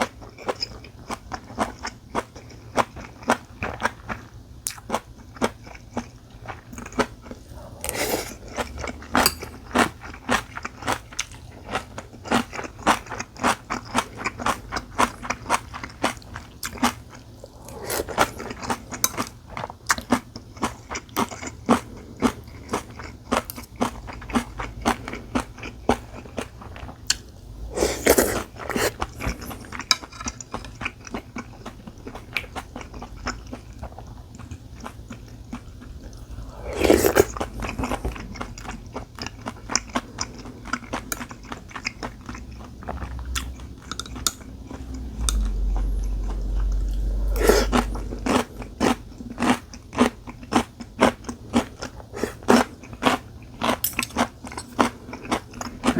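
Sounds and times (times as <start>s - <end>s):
longer noisy eating sounds: 0.0s - 55.9s.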